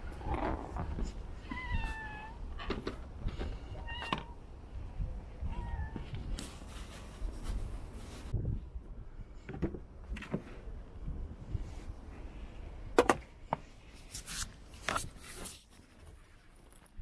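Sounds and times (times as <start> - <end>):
cat meowing: 1.4 - 2.5, 3.7 - 4.4, 5.4 - 6.2.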